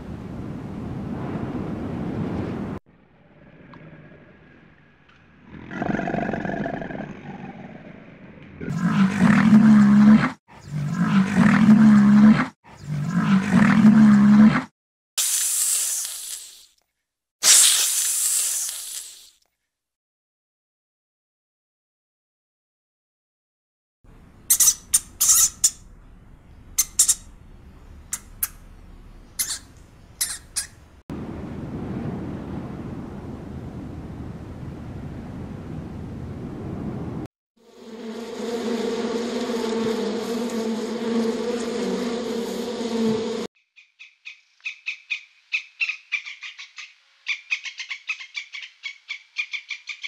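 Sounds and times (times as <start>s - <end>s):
wind rushing outdoors: 0.0s - 5.0s, 25.7s - 37.3s
rat squeaking: 24.5s - 25.9s, 26.7s - 27.3s, 28.1s - 28.6s, 29.4s - 30.8s.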